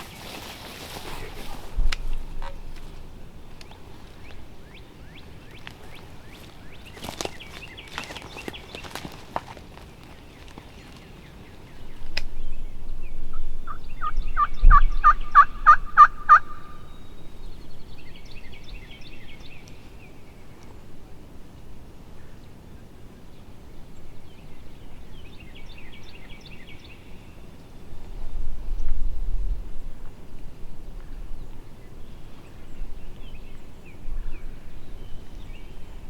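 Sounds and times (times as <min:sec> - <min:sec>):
turkey gobbling: 0:13.7 - 0:16.8
turkey yelping: 0:14.4 - 0:16.8.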